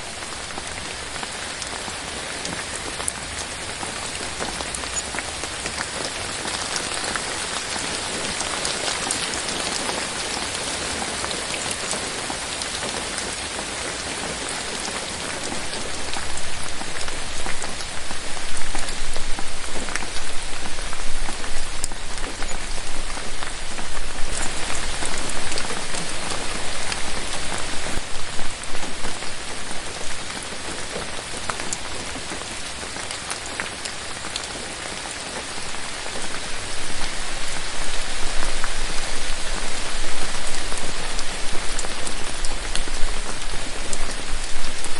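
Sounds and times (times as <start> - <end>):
rain on leaves: 0.0 - 44.9.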